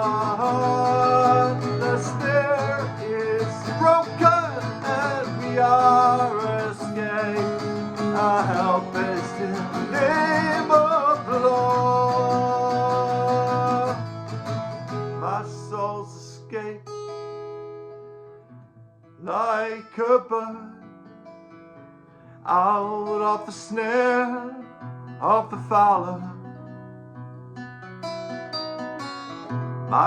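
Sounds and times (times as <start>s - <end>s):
person singing: 0.0s - 14.1s, 15.2s - 16.8s, 22.5s - 26.4s
guitar accompaniment: 0.0s - 30.0s.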